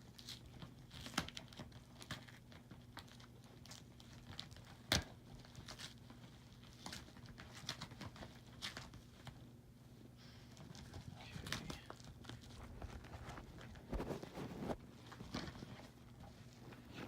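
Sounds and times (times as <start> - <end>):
packaging crinkling and tearing: 0.0 - 9.4
low steady hum: 0.0 - 17.0.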